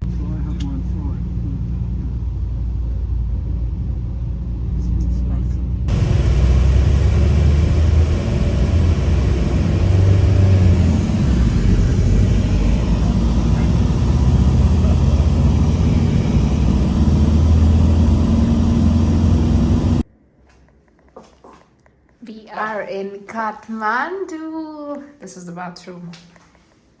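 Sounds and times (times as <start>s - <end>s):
vehicle rumble from inside: 0.0s - 20.0s
faint rising hum: 0.0s - 20.1s.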